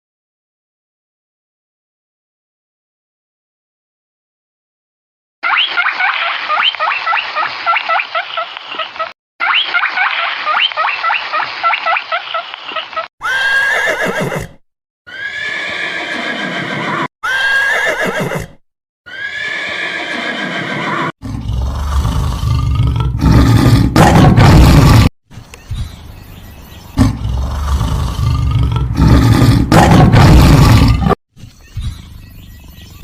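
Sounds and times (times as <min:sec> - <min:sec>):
drawn-out falling animal calls: 0:05.4 - 0:14.4
loud low rough roar: 0:21.2 - 0:25.1, 0:27.0 - 0:31.2.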